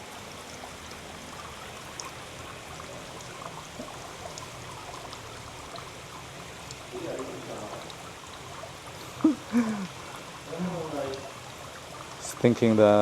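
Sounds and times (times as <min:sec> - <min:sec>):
water trickling into pool: 0:00.0 - 0:13.0
small drip ticks: 0:00.4 - 0:13.0.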